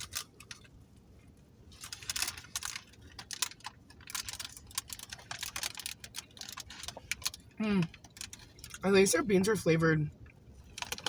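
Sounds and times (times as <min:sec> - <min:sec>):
wrapper crinkling: 0:00.0 - 0:00.7, 0:01.7 - 0:08.8, 0:10.5 - 0:11.0.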